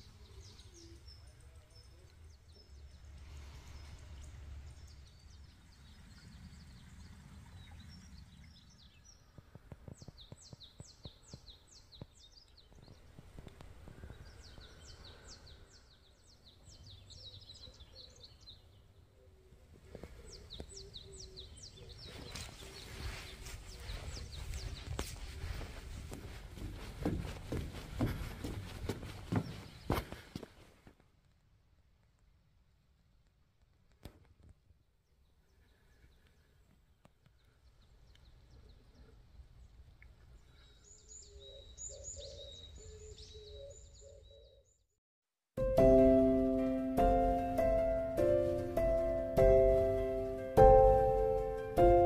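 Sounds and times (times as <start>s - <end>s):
bird chirping: 0.0s - 26.8s, 28.0s - 30.3s, 35.0s - 45.0s.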